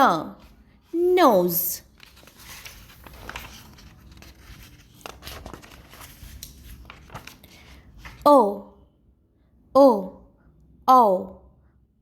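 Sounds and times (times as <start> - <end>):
rustling and crinkling: 1.8 - 8.2.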